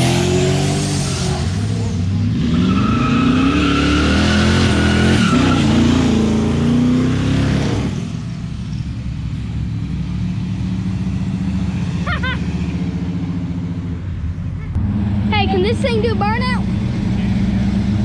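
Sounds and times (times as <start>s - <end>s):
car engine revving: 0.0s - 18.0s
low engine rumble: 8.0s - 18.0s.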